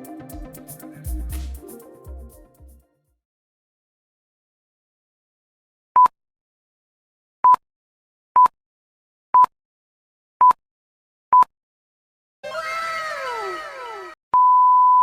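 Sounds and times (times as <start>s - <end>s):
short electronic beeps: 14.4s - 15.0s.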